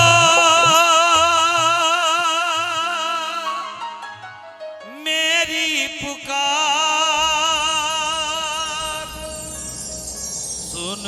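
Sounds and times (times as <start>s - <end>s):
low drum beats: 0.0s - 1.8s
musical accompaniment: 0.0s - 2.8s
person singing devotional song: 0.0s - 3.6s.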